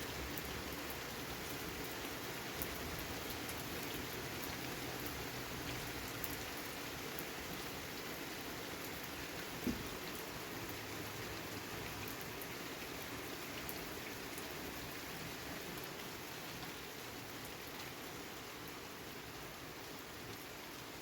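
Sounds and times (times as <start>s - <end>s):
rain pattering: 0.0s - 21.0s
dull knock: 9.6s - 9.8s.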